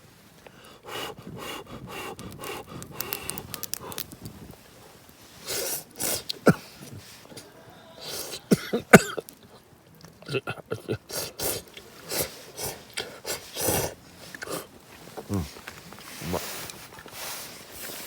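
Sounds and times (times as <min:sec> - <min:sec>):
sharp breaths and sniffs: 0:00.4 - 0:08.9, 0:11.0 - 0:18.0
person slurping noodles: 0:05.4 - 0:06.7, 0:11.1 - 0:15.6.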